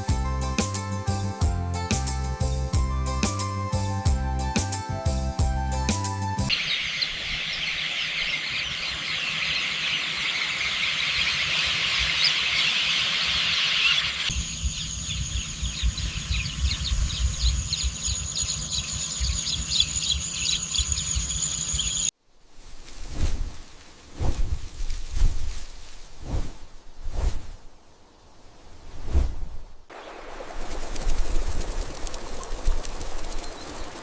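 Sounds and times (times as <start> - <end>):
insect chirps: 6.5 - 22.1, 29.9 - 34.0
small birds chirping: 6.5 - 22.1, 30.0 - 34.0
high-pitched insect drone: 13.8 - 22.1
low wind rumble: 14.3 - 21.8, 22.4 - 34.0.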